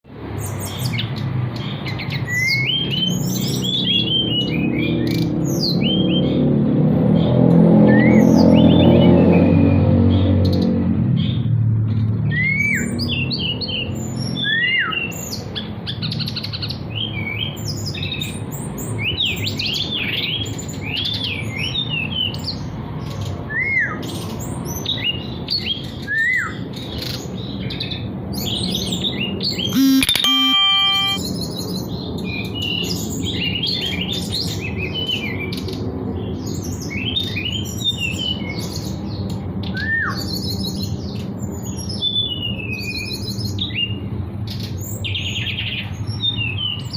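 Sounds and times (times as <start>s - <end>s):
brief steady tone: 29.8s - 31.2s.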